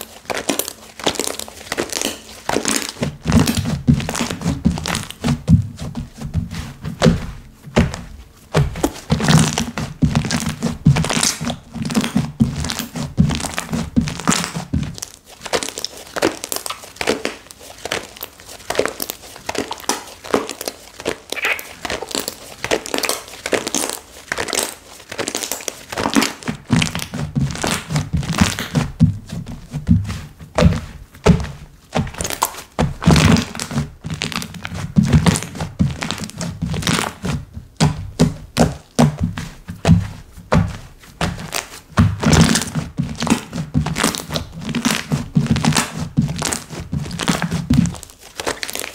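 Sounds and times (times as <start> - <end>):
hands squishing slime: 0.0 - 48.9
dull thuds: 3.0 - 15.0, 26.7 - 48.1.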